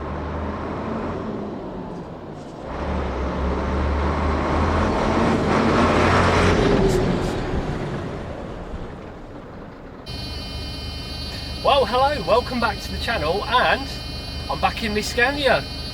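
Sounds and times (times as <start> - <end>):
diesel lorry engine droning: 10.1 - 15.9.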